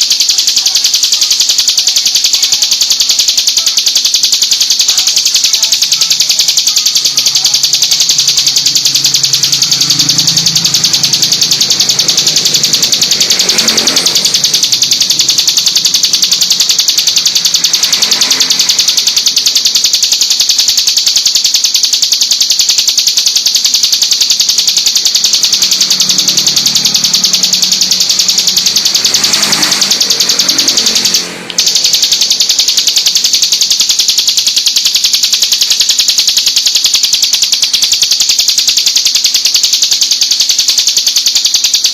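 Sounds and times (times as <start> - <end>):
songbird trilling: 4.8 - 15.3.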